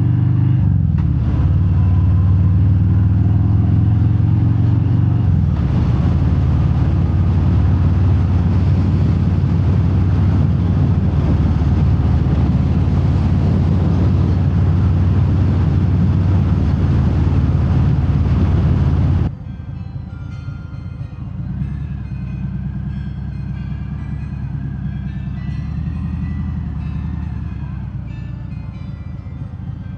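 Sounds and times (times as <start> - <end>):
motorcycle engine running: 0.0 - 19.3, 21.4 - 28.5
wind noise: 0.6 - 19.3.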